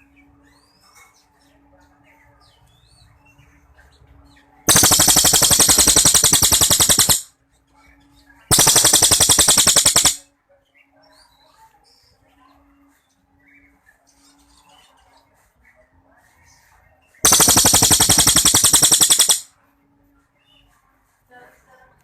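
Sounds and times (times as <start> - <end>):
songbird rattling trills: 4.7 - 7.3, 8.5 - 10.2, 17.3 - 19.5
faint bird chirps: 17.3 - 19.4.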